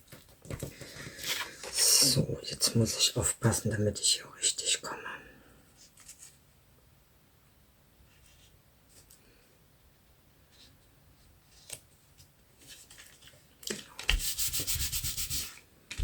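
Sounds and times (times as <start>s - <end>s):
scratchy rubbing on paper: 14.1s - 15.6s.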